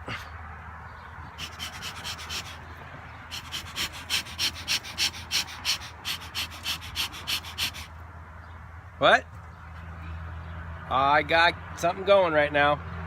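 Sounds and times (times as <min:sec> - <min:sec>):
bellows puffing air: 0:01.3 - 0:08.0.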